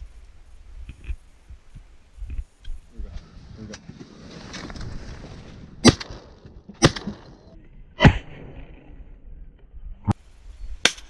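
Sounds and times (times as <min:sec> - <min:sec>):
shotgun shots: 0:05.8 - 0:07.4.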